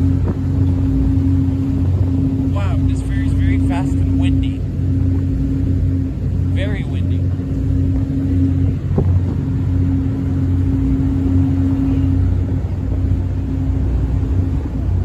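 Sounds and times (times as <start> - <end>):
ship engines droning: 0.0 - 15.0
wind buffeting microphone: 0.0 - 15.0.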